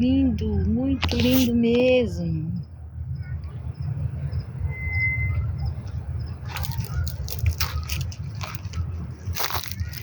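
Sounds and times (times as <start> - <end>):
outdoor rumble on microphone: 0.0 - 10.0
sharp crackles and crunches: 1.0 - 1.6, 6.3 - 10.0
thin whistle: 4.7 - 5.6.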